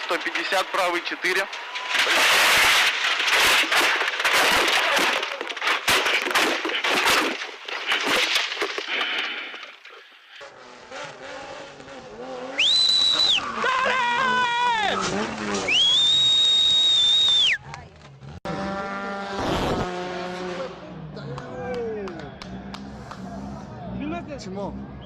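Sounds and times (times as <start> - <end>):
car crashing and scraping: 0.0 - 10.2, 14.8 - 16.1
shrill whistle: 12.6 - 13.5, 15.6 - 17.6.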